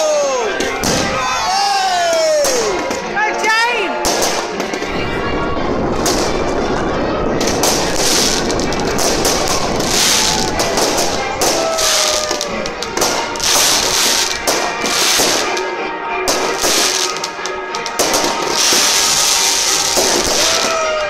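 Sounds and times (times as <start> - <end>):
fireworks crackling and banging: 0.0 - 21.0
music playing: 0.0 - 21.0
fireworks whistles: 5.2 - 15.6, 16.3 - 21.0.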